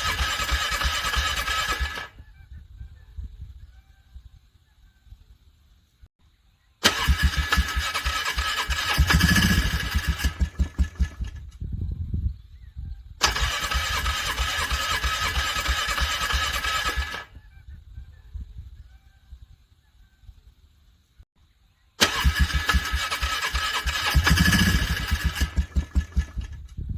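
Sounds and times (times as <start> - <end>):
engine starter cranking: 0.0 - 2.2, 6.8 - 11.6, 13.2 - 17.4, 22.0 - 26.8
low engine pulses: 6.8 - 12.1, 22.0 - 26.9.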